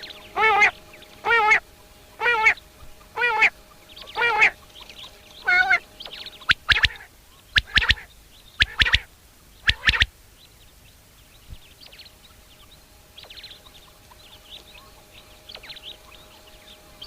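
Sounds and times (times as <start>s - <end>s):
quail three-note song: 0.0s - 9.1s
nasal quavering bird calls: 0.0s - 10.1s, 11.4s - 17.0s.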